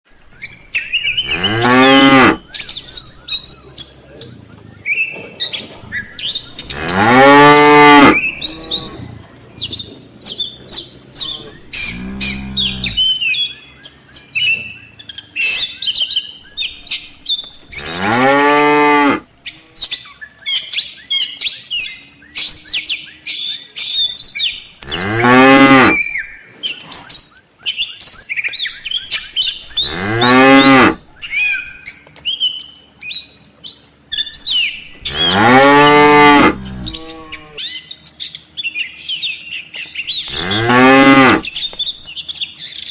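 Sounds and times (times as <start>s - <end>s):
birds chirping: 0.1s - 42.9s
cattle mooing: 1.2s - 2.4s, 6.4s - 9.3s, 11.3s - 13.1s, 17.7s - 19.2s, 24.8s - 26.1s, 29.8s - 31.0s, 35.0s - 37.6s, 40.3s - 41.5s.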